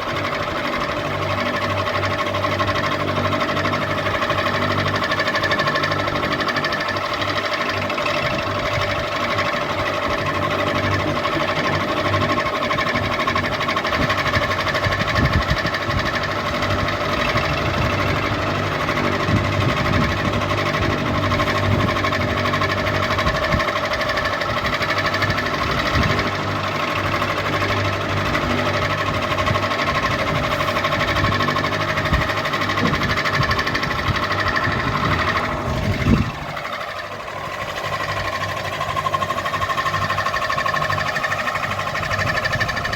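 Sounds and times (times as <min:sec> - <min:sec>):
ceiling fan whirring: 0:00.0 - 0:42.9.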